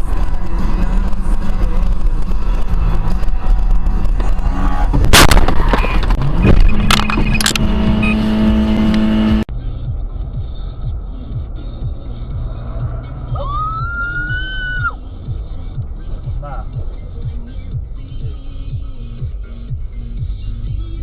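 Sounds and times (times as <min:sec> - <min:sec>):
car engine and road noise: 0:00.0 - 0:21.0
car crash impact: 0:03.7 - 0:07.2.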